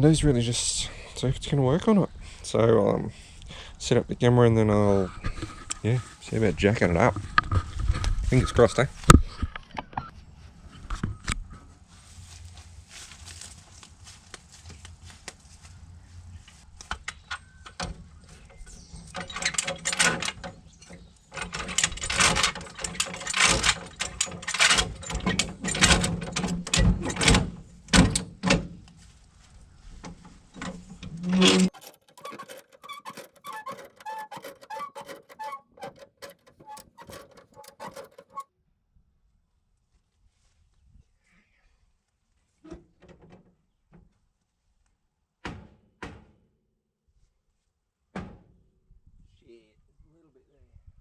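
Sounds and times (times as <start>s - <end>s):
jack clanking and ratcheting: 18.5s - 28.4s, 30.6s - 38.4s.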